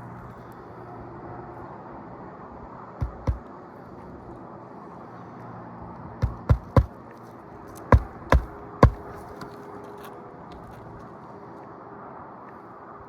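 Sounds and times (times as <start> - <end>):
hammer knocking: 3.0 - 3.4, 6.2 - 6.9, 7.9 - 9.0.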